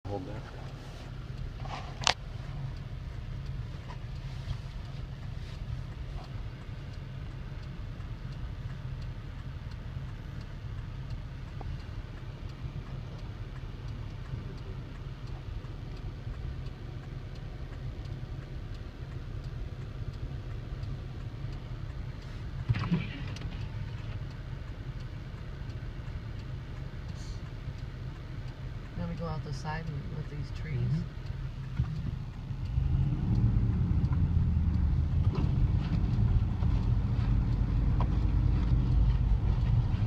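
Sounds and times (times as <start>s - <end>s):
car engine running: 0.0s - 40.0s.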